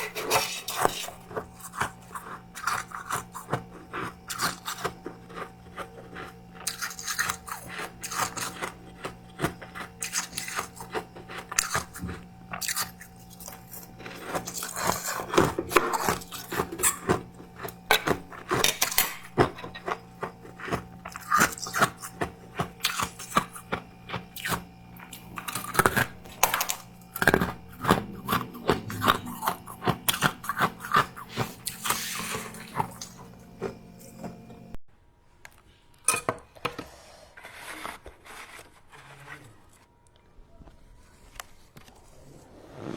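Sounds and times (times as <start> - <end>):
faint low hum: 0.0 - 34.8
frost crunching: 0.0 - 34.8.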